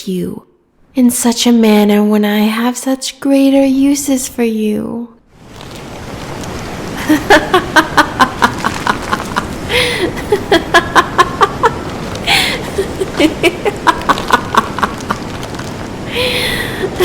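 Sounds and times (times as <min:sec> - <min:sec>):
sea waves hissing: 0:05.4 - 0:17.0
woman cackling laugh: 0:07.0 - 0:15.4
sharp gasping in-breaths: 0:09.7 - 0:10.2, 0:12.2 - 0:12.8, 0:16.1 - 0:16.9.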